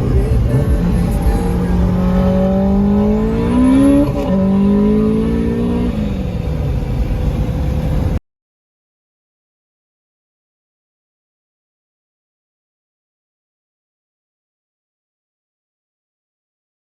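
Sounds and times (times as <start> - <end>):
car engine accelerating: 0.0 - 8.2.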